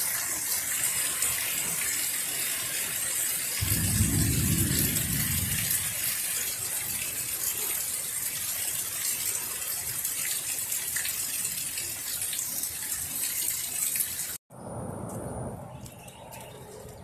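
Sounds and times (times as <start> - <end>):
heavy rain falling: 0.0 - 12.8
low rumble: 3.6 - 6.1.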